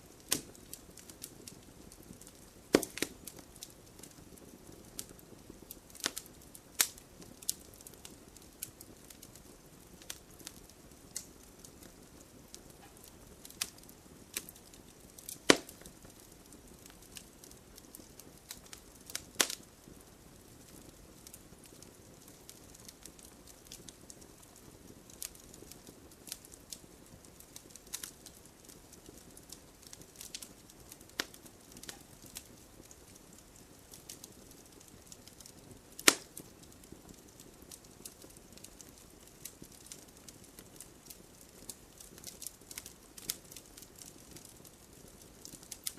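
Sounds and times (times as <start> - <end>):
fire hiss: 0.0 - 24.2
campfire crackling: 0.0 - 45.9
loud wood snaps: 2.7 - 3.2, 15.3 - 15.9, 36.0 - 36.3.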